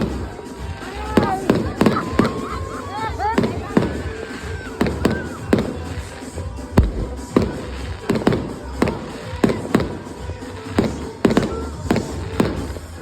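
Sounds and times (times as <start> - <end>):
fireworks banging: 0.0 - 13.0.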